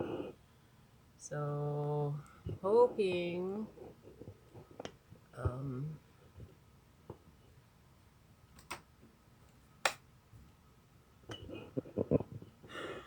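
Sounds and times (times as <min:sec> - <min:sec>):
sharp clicks: 0:08.6 - 0:08.9.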